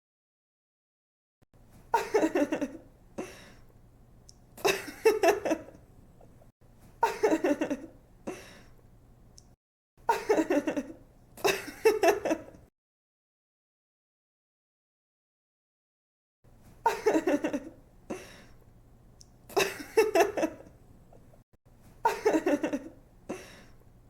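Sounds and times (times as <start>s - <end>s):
faint steady hum: 1.6s - 12.7s, 16.5s - 24.0s
woman giggling: 1.9s - 2.8s, 4.6s - 5.8s, 7.0s - 8.5s, 10.1s - 12.6s, 16.9s - 18.2s, 19.5s - 20.7s, 22.0s - 23.6s
soft breaths: 3.2s - 3.7s, 18.1s - 18.7s, 23.3s - 23.9s.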